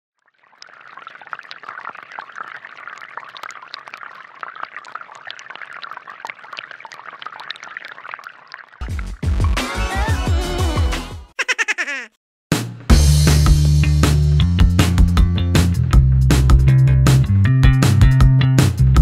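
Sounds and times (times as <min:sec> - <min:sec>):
water splashing into container: 0:00.2 - 0:09.3.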